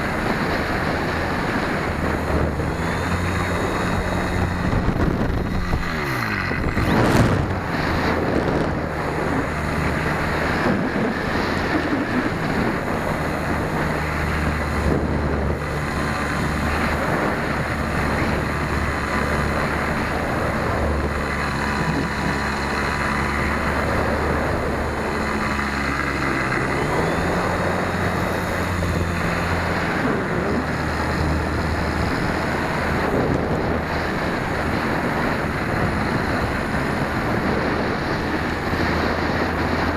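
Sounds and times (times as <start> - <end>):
electric motor and propeller hum: 0.0 - 39.9.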